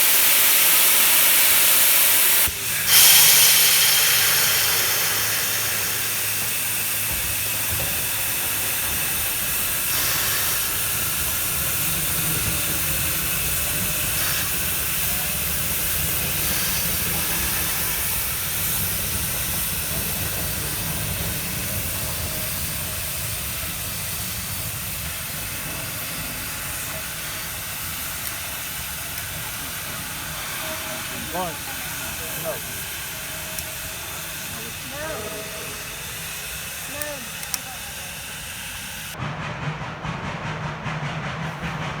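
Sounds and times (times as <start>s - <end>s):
steam hissing: 0.0s - 42.0s.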